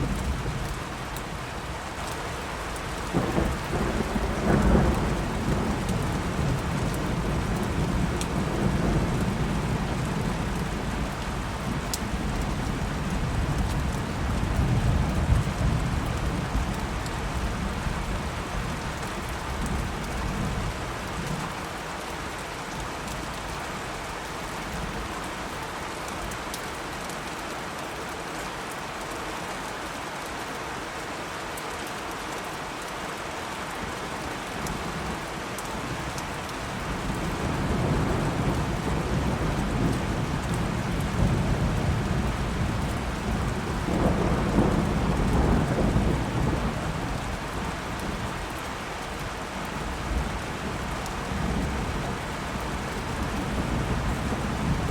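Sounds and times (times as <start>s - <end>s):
rain falling: 0.0s - 54.9s
rolling thunder: 3.1s - 17.4s, 37.0s - 47.8s.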